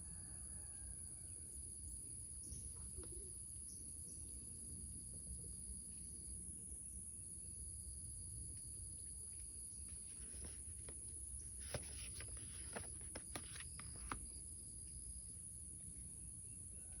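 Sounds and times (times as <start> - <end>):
paper rustle: 9.9 - 14.3
soft taps and clicks of pages: 9.9 - 14.3.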